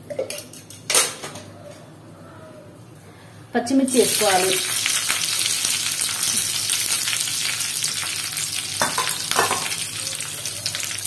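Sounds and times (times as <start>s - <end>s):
chillies sizzling in oil: 3.8s - 11.0s.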